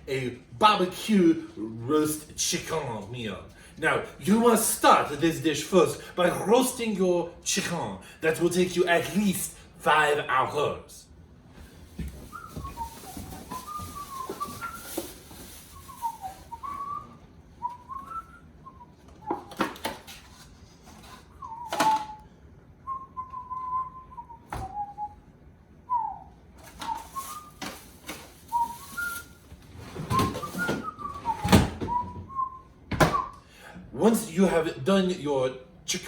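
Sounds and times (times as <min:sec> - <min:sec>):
person whistling a tune: 0:12.2 - 0:19.8, 0:21.0 - 0:25.2, 0:25.9 - 0:29.4, 0:30.0 - 0:33.5.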